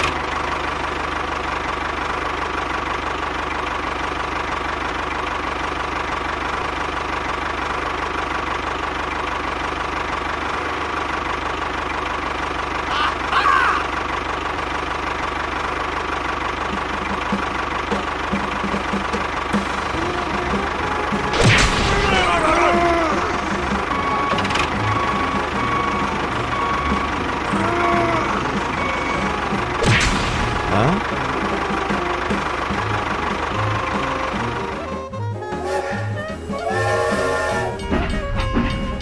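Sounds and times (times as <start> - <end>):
tractor engine chugging: 0.0 - 39.0
toy tractor driving: 22.0 - 29.8, 30.5 - 39.0
high squeak: 35.5 - 39.0.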